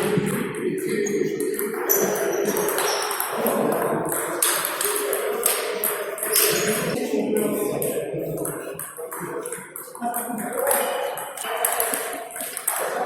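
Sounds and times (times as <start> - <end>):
table tennis balls clicking: 1.4 - 7.0, 8.4 - 13.0.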